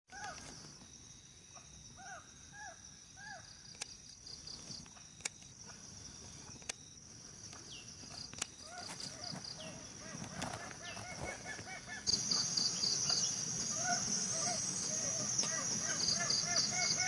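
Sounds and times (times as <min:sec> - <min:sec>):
insect pulsing trill: 0:00.1 - 0:17.0
insects buzzing: 0:00.1 - 0:17.0
bird calls: 0:07.6 - 0:17.0.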